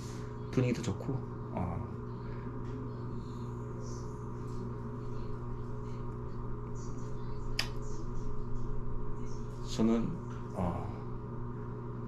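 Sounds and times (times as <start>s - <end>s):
low room hum: 0.0s - 12.0s
sharp click: 7.6s - 7.8s.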